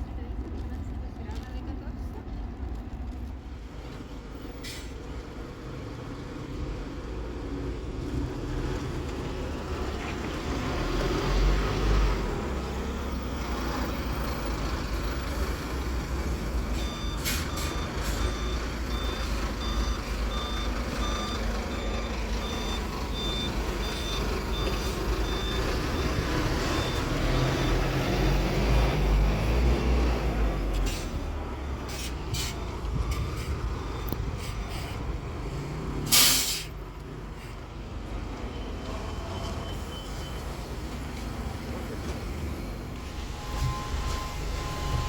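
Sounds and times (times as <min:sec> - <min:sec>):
bus diesel engine rumble: 0:00.0 - 0:45.0
high electronic warning beep: 0:16.6 - 0:28.0, 0:43.2 - 0:45.0.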